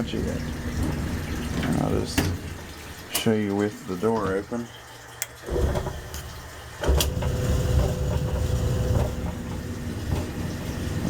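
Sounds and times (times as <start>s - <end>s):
dryer drum tumbling clothes: 0.0s - 4.7s, 5.4s - 11.0s
motor hum: 5.2s - 11.0s.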